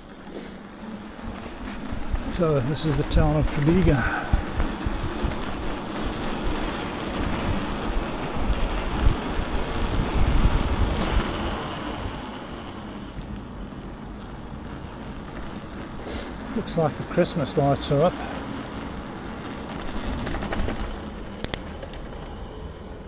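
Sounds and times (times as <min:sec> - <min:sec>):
road and traffic noise: 0:00.0 - 0:23.0
wind buffeting microphone: 0:01.1 - 0:12.5.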